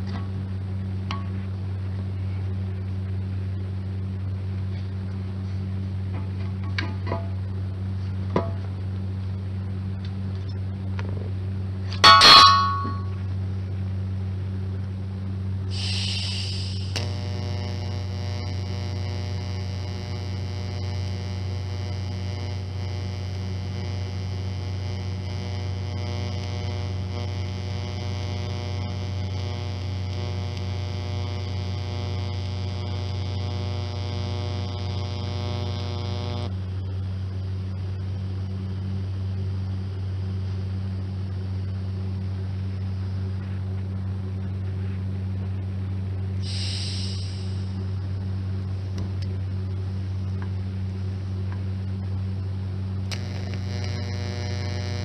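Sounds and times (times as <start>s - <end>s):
electric welder humming: 11.8s - 13.2s, 15.7s - 43.3s, 46.4s - 55.0s
welding buzz: 11.8s - 13.2s, 15.7s - 43.3s, 46.4s - 48.0s, 52.9s - 55.0s.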